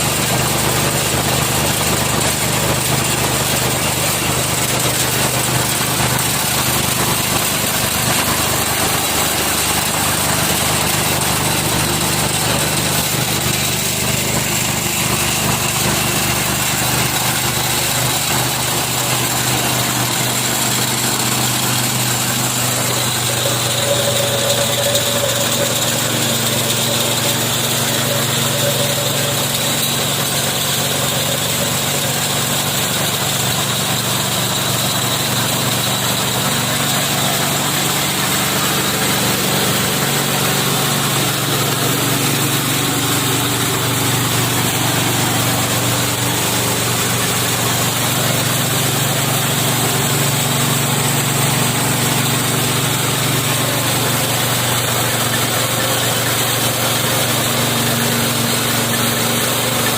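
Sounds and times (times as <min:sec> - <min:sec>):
milling machine engine running: 0:00.0 - 0:59.9.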